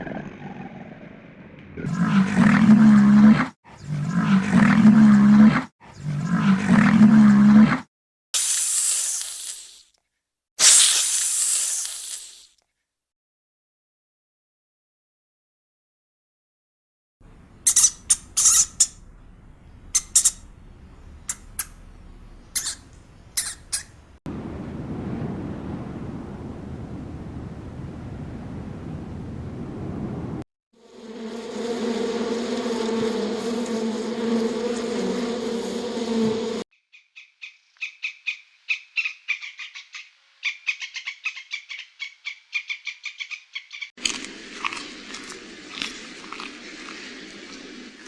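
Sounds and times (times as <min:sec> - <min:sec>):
large animal low call: 0:00.0 - 0:07.8
hiss: 0:08.4 - 0:09.9, 0:10.6 - 0:12.6
farm animal squawking: 0:17.5 - 0:20.6, 0:21.2 - 0:24.1, 0:37.2 - 0:43.9
wind rumble on microphone: 0:24.3 - 0:30.4.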